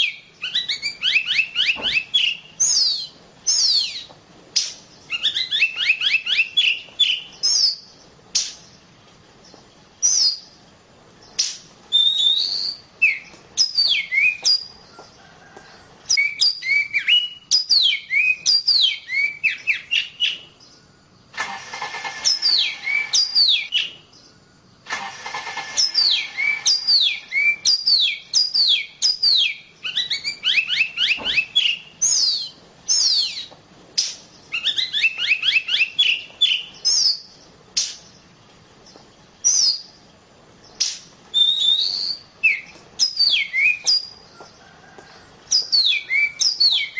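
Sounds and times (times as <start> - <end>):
bird whistling song: 0.0 - 10.6, 11.2 - 20.9, 22.1 - 24.4, 25.5 - 38.3, 38.9 - 40.0, 40.6 - 46.9
bird harsh rasping notes: 21.3 - 23.9, 24.9 - 38.2.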